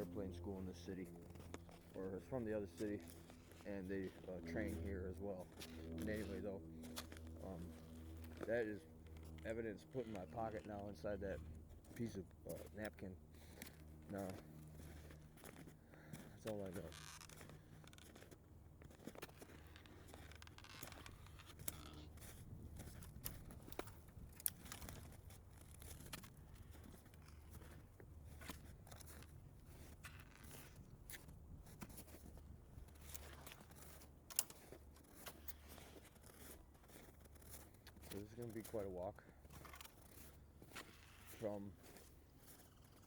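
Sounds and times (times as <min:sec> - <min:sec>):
low steady rumble: 0:00.0 - 0:16.8
crunching and rustling in snow: 0:00.0 - 0:43.0.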